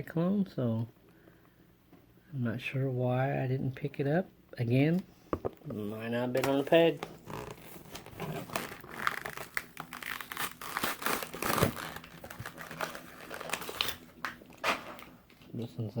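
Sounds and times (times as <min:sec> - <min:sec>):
plastic packaging crinkling: 0:06.4 - 0:15.6.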